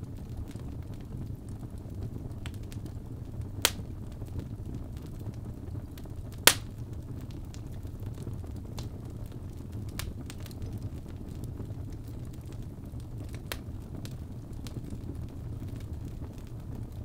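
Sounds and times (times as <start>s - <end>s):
logs burning with crackles: 0.0s - 17.0s
loud sharp pop: 6.5s - 6.7s.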